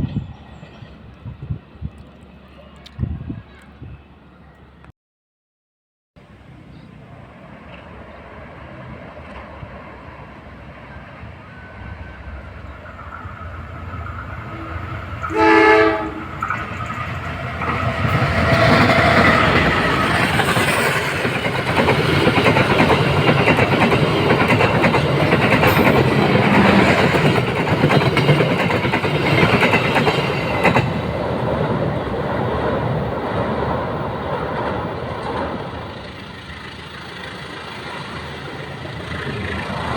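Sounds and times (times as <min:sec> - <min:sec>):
diesel locomotive engine: 0:00.0 - 0:04.9, 0:06.2 - 0:39.9
train wheels clacking on rails: 0:13.1 - 0:39.9
train horn: 0:14.4 - 0:16.8.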